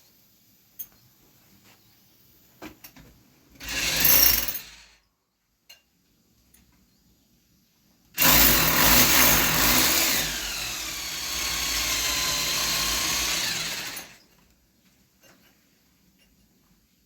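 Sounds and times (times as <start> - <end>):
electric power tool running: 3.6 - 4.8, 8.2 - 14.2.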